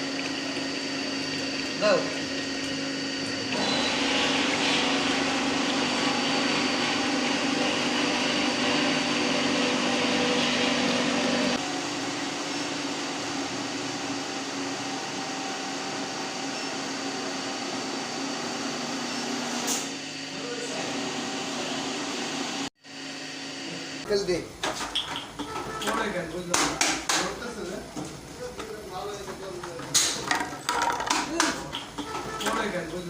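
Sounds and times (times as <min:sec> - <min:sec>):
grinder whirring: 0:00.0 - 0:24.0.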